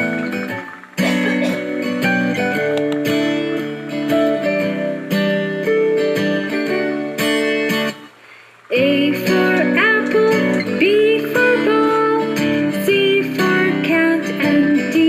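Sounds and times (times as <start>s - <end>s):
sliding melodic notes: 0.0s - 8.1s
strummed acoustic guitar music: 0.0s - 15.0s.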